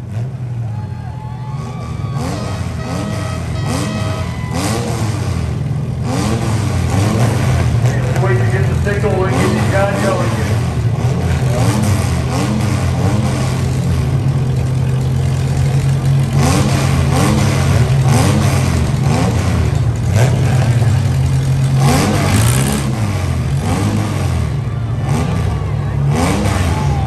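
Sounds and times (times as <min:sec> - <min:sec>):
car engines revving: 0:00.0 - 0:27.0.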